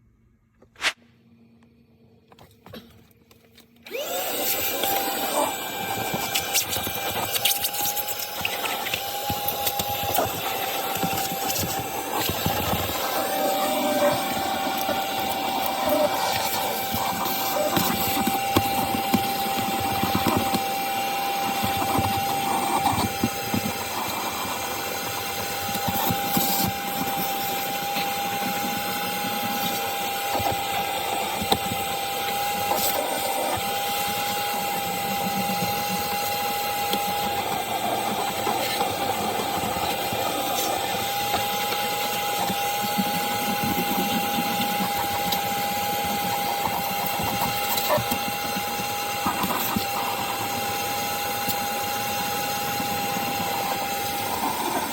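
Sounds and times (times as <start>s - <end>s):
vacuum motor whine: 2.4s - 54.9s
grit rattling through nozzle: 4.5s - 31.6s.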